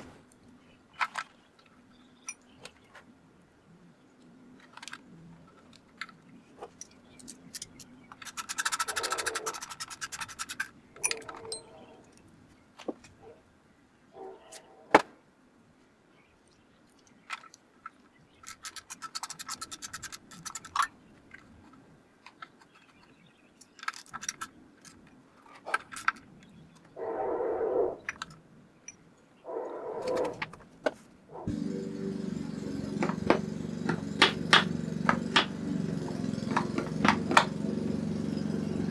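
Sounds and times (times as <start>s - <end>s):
socket ratchet clicking: 7.2s - 11.3s
metal tools clinking: 7.2s - 12.0s.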